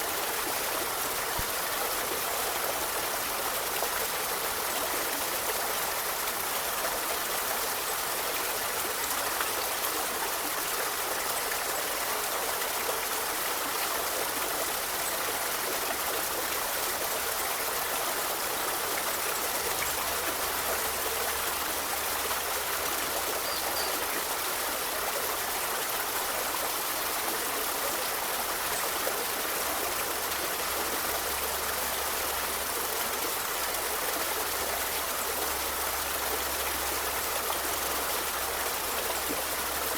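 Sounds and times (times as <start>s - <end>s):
river water flowing over stones: 0.0s - 39.9s.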